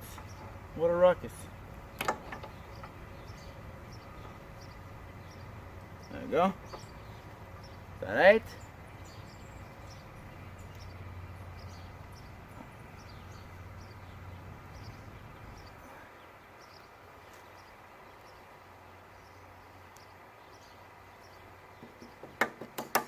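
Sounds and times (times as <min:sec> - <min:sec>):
low hum: 0:00.0 - 0:16.1
sharp knocks: 0:21.8 - 0:23.0.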